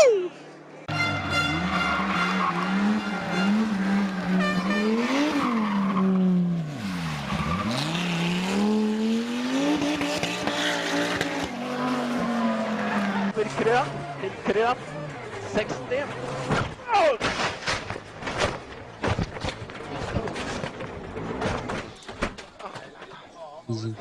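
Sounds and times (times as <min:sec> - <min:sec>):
rally car engine revving: 0:00.9 - 0:16.8.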